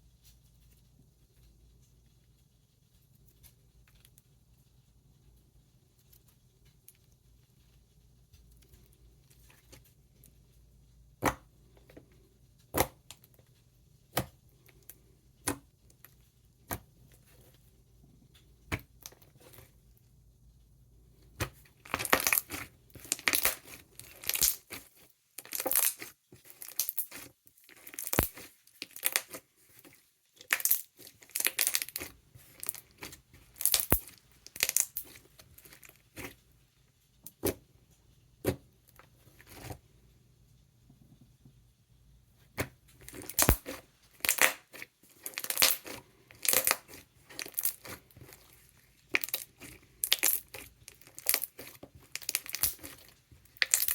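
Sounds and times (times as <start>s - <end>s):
slime clicking and crackling: 21.2s - 36.4s, 43.0s - 53.9s.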